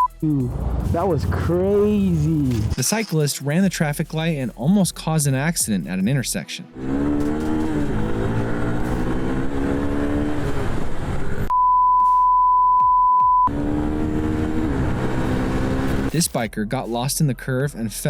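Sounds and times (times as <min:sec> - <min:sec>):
high censor bleep: 0:00.0 - 0:00.2, 0:11.5 - 0:13.5.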